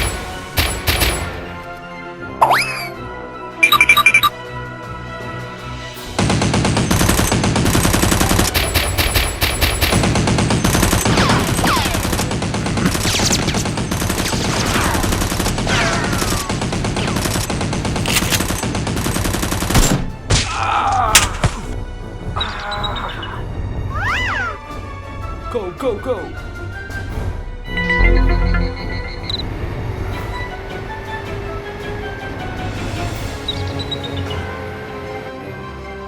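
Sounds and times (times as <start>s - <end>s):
machine-gun bursts: 6.2s - 19.9s.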